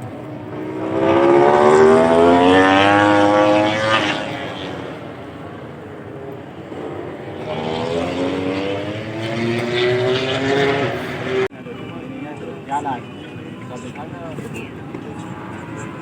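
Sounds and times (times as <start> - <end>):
second motorcycle engine rising: 0.0 - 5.2, 6.6 - 11.5
motorcycle engine accelerating: 0.0 - 11.5.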